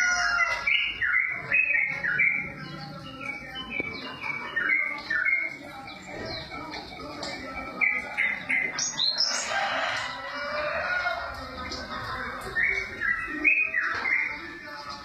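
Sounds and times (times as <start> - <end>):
rooster crowing: 0.0 - 0.7, 9.2 - 11.4
sparrow chirping: 0.0 - 15.0.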